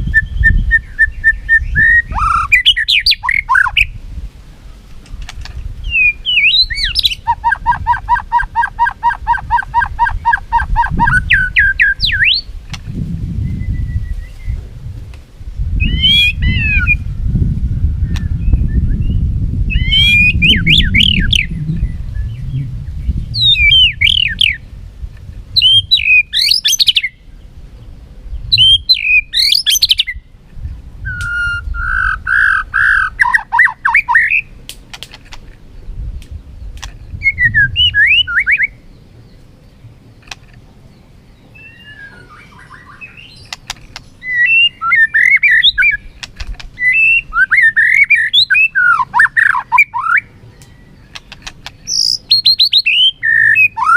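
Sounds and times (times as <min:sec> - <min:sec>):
bird whistling song: 0:00.0 - 0:04.0, 0:05.8 - 0:12.5, 0:13.4 - 0:14.6, 0:15.8 - 0:17.2, 0:18.0 - 0:24.7, 0:25.6 - 0:27.3, 0:28.3 - 0:30.3, 0:31.0 - 0:34.5, 0:37.0 - 0:39.3, 0:41.4 - 0:53.9.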